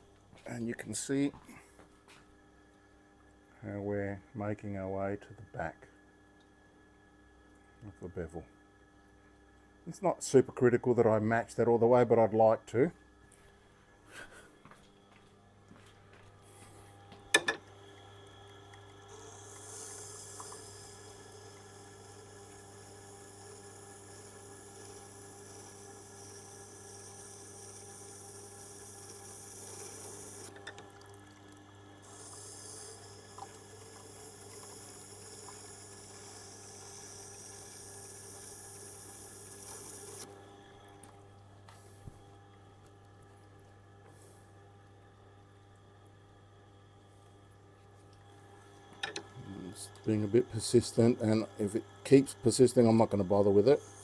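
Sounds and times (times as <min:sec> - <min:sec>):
grinder motor hum: 0:14.3 - 0:43.4, 0:48.0 - 0:54.0
steel grinding wet hiss: 0:32.0 - 0:40.3.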